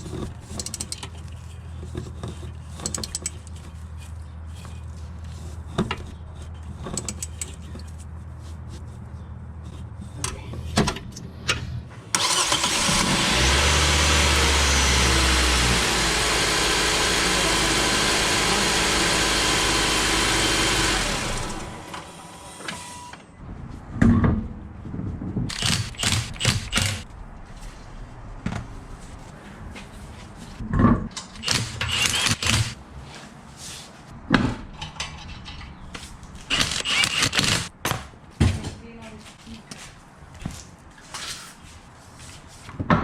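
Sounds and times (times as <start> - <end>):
engine running: 12.1 - 22.4.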